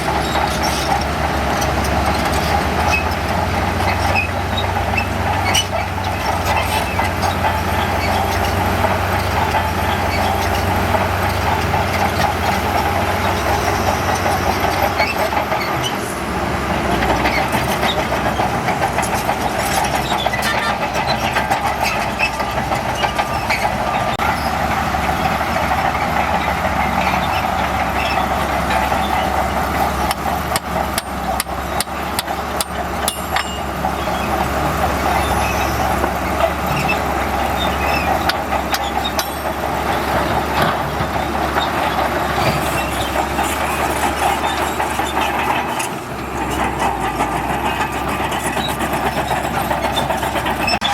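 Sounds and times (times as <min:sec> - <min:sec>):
bulldozer diesel engine running: 0:00.0 - 0:50.9
metallic clanks and rattles: 0:30.0 - 0:37.0, 0:37.6 - 0:50.9.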